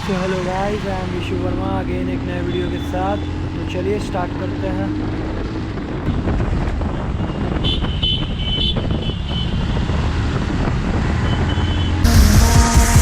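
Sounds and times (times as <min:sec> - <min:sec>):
road vehicles rumbling: 0:00.0 - 0:12.2
wind on microphone: 0:04.9 - 0:11.9.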